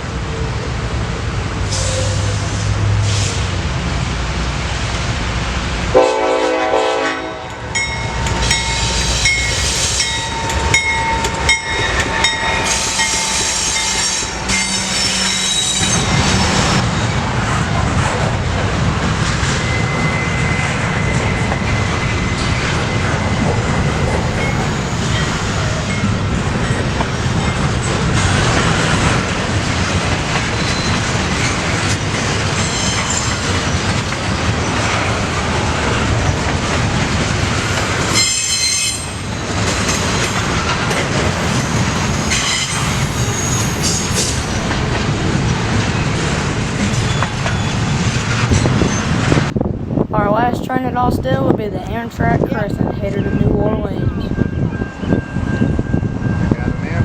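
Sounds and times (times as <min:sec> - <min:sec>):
train horn blast: 0:05.9 - 0:07.8
train wheels clacking on rails: 0:07.5 - 0:49.5
high-pitched wheel squeal: 0:12.6 - 0:16.8, 0:38.1 - 0:39.2, 0:41.6 - 0:44.4.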